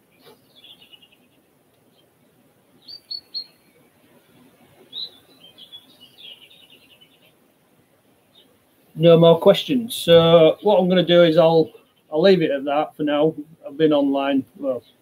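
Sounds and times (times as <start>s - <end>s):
small bird chirping: 0.0s - 2.2s, 2.8s - 7.4s, 8.2s - 8.6s.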